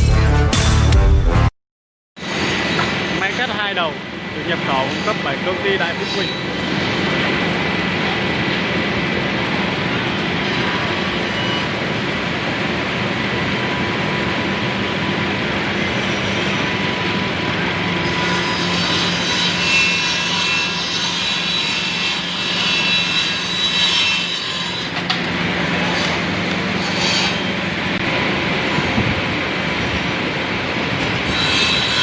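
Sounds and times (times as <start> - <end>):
saw blades cutting wood: 2.2 - 8.6, 15.6 - 28.0, 30.8 - 32.0.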